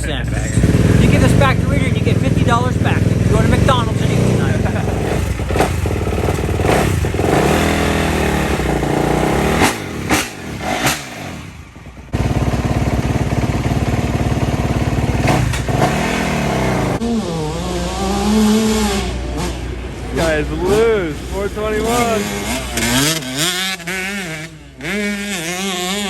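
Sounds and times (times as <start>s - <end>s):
dirt bike engines revving: 0.0s - 26.0s.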